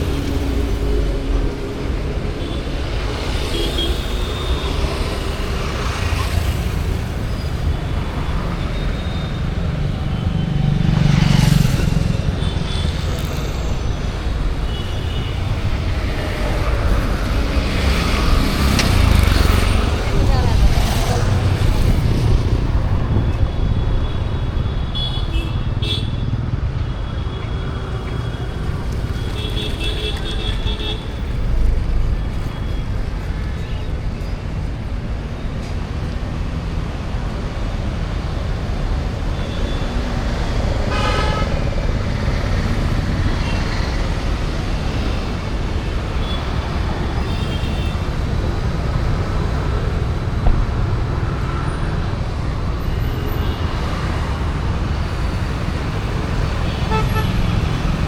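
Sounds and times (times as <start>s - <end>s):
traffic rumble of engines and tyres: 0.0s - 58.0s
vehicle horns tooting: 40.9s - 41.6s, 56.6s - 58.0s.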